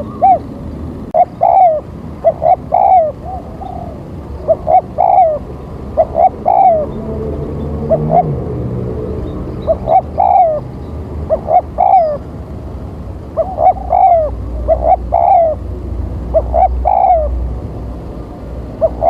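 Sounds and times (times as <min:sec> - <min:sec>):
dove cooing: 0:00.0 - 0:00.5, 0:01.2 - 0:08.5, 0:09.2 - 0:12.3, 0:13.3 - 0:15.7, 0:16.3 - 0:17.4, 0:18.8 - 0:19.0.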